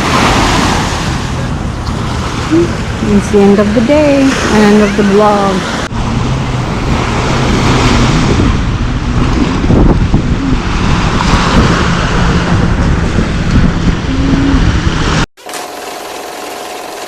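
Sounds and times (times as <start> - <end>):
waves breaking on beach: 0.0 - 3.2, 6.6 - 9.8, 10.4 - 12.6
wind buffeting microphone: 0.0 - 15.3.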